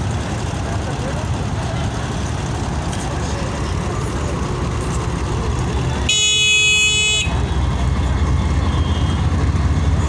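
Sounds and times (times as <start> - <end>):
continuous low rumble: 0.0 - 10.0.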